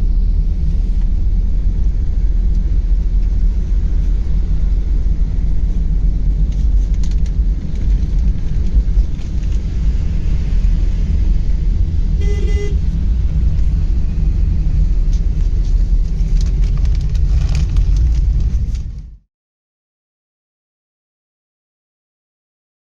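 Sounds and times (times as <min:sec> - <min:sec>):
car rumbling on road: 0:00.0 - 0:19.2
vehicle horn: 0:12.1 - 0:12.9.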